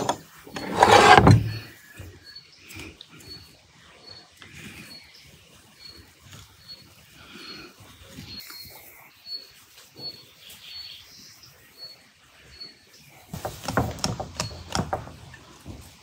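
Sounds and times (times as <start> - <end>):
sharp knocks and clatter: 13.4 - 15.9.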